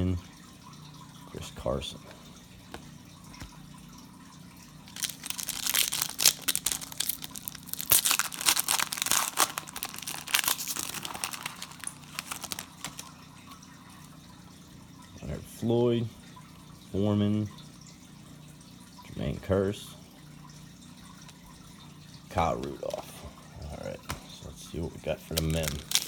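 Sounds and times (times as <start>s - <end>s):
plastic foil wrapper crackling: 4.9s - 13.2s, 25.2s - 26.0s.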